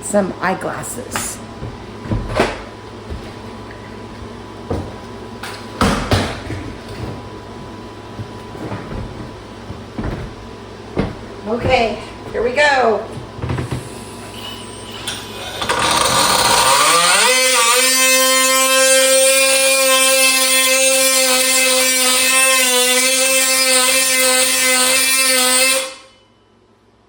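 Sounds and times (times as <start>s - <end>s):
electric cutting tool whining: 13.9s - 26.0s.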